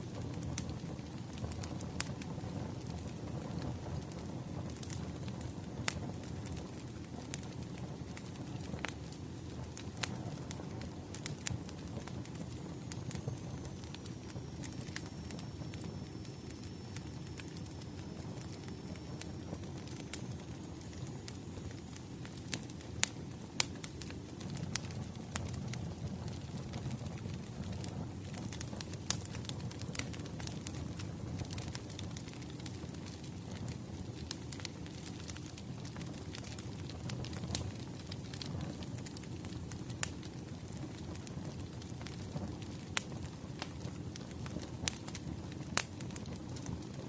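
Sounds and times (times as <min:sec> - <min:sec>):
wood fire crackling: 0:00.0 - 0:47.0.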